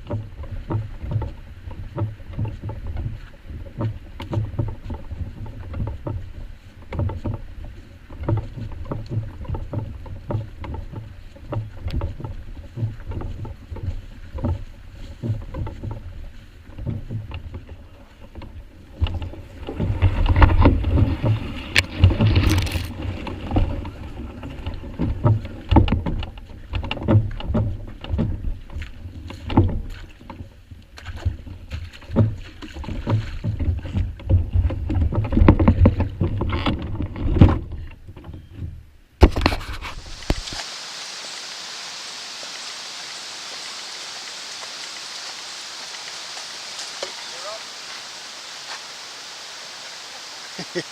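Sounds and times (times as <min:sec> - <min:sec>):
water slapping against hull: 0:00.0 - 0:40.7
paddle splashes: 0:00.0 - 0:50.9.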